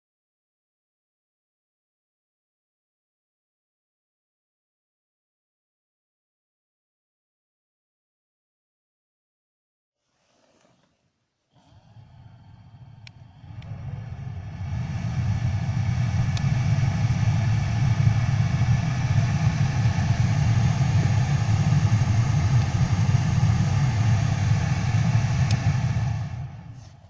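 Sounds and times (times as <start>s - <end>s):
heater blower fan: 11.5s - 27.0s.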